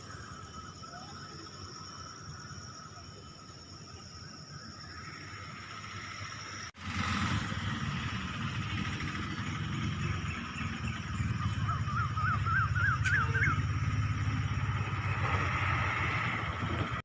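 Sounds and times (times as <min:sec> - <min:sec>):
car engine and road noise: 0:04.6 - 0:17.0.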